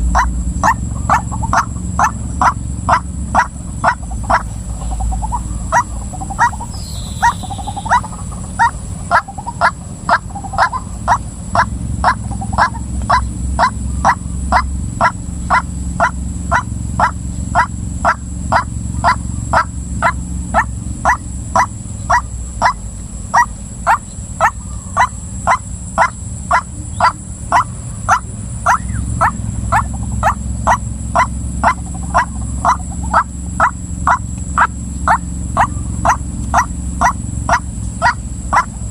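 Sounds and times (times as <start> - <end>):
steady low hum: 0.0 - 38.9
waterhen calling: 0.0 - 38.9.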